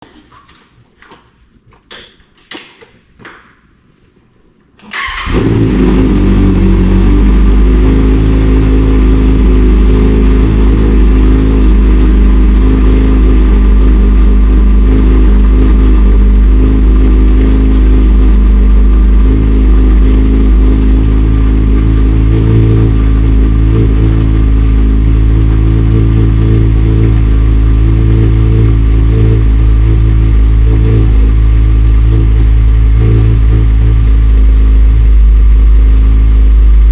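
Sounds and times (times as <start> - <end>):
motorcycle engine starting and idling: 4.8 - 36.9.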